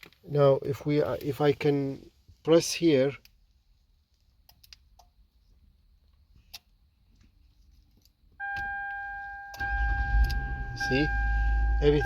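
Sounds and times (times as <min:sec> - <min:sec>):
electronic warning tone: 0:08.4 - 0:12.0
car engine starting: 0:09.6 - 0:12.0.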